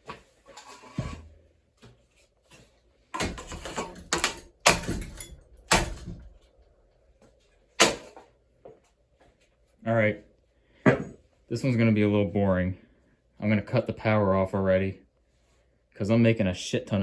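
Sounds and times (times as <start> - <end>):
ceiling fan being smashed: 3.2 - 6.4, 7.8 - 8.2
loud bangs and clattering hits: 3.2 - 6.4.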